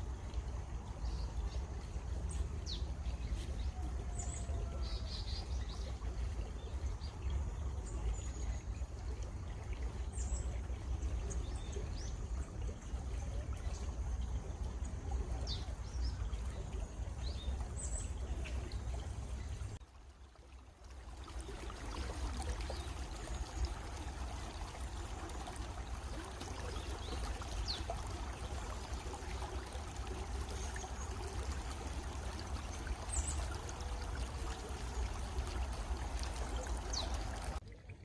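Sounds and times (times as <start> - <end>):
stream water rushing: 0.0 - 37.7.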